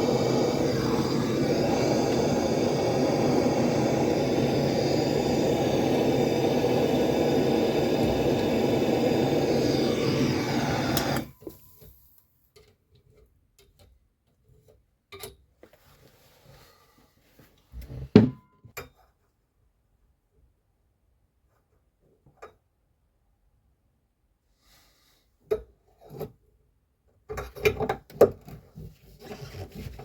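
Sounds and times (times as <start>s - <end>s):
loud mechanical running noise: 0.0s - 11.3s.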